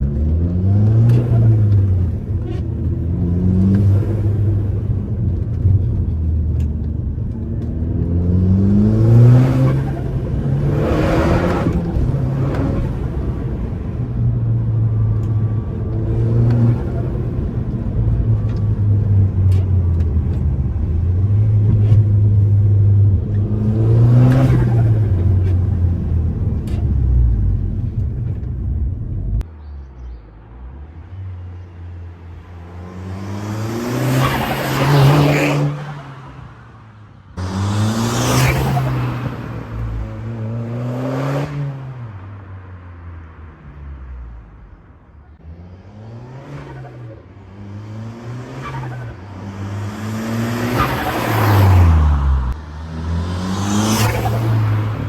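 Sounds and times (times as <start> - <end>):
car engine revving: 0.0 - 30.0, 30.6 - 36.5, 37.2 - 42.4, 44.0 - 55.0.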